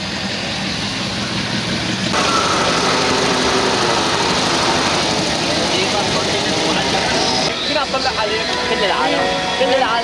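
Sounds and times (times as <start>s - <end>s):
car engines rolling past: 0.0s - 7.7s.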